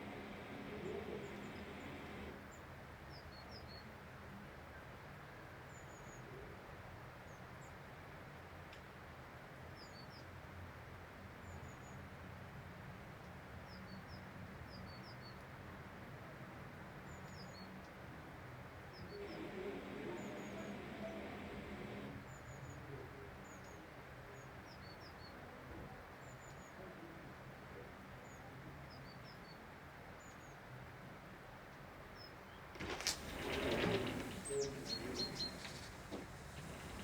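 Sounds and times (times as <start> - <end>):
low background hush: 0.0 - 2.5, 19.1 - 22.4, 32.8 - 37.0
small birds chirping: 32.8 - 37.0.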